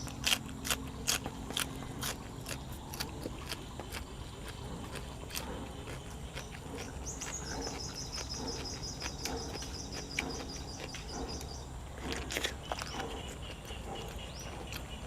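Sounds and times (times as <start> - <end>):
chewing and crunching food: 0.0 - 15.0.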